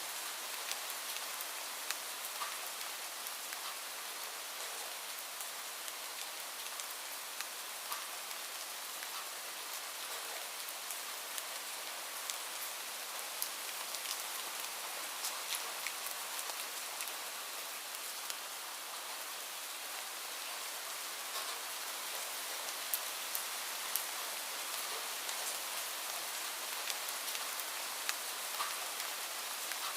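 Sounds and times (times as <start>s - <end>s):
steady rain: 0.0s - 29.9s
raindrops pattering: 0.2s - 20.6s, 21.2s - 29.9s.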